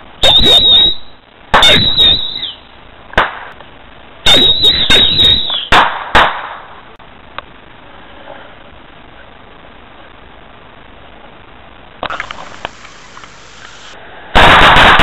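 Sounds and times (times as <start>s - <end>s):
fireworks exploding: 0.0s - 3.6s, 4.2s - 6.8s, 12.0s - 15.0s
high firework whistle: 0.2s - 2.7s, 4.2s - 5.9s.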